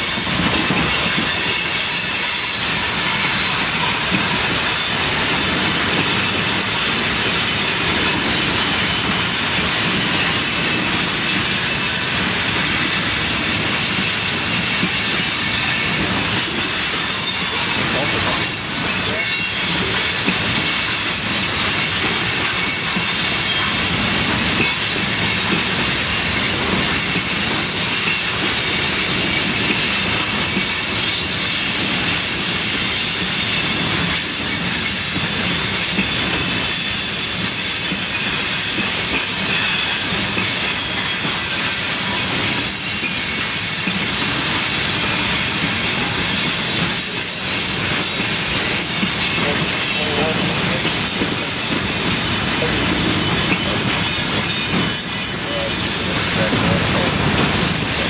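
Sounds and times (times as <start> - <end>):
freight train wheels on rail: 0.0 - 58.0.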